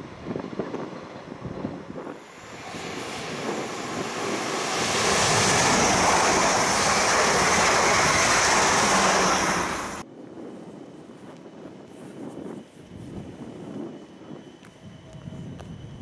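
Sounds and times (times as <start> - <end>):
electric train passing at speed: 0.1 - 10.0
thin high hiss: 2.2 - 10.0.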